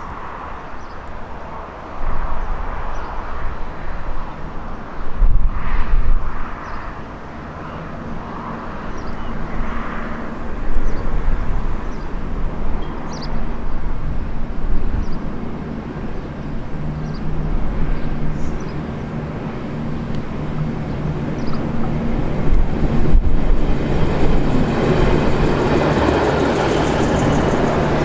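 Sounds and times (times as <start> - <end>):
diesel train rumbling: 11.3 - 28.0.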